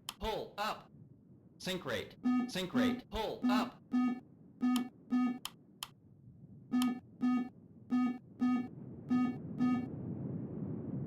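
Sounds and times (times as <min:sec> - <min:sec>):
cockpit warning beeps: 0:02.2 - 0:05.5, 0:06.7 - 0:09.9
low cockpit noise: 0:06.6 - 0:09.9.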